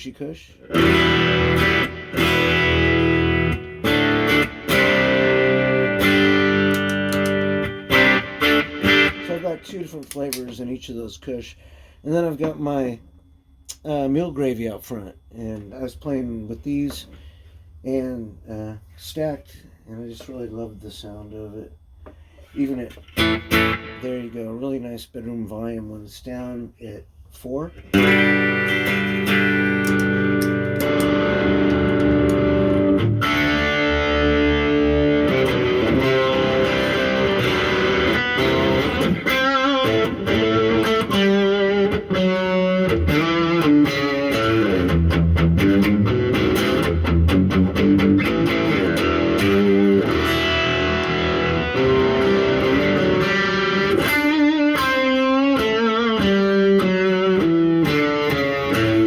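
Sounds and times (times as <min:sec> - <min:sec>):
overdriven electric guitar: 0:00.6 - 0:10.4, 0:23.0 - 0:24.3, 0:27.7 - 0:59.0.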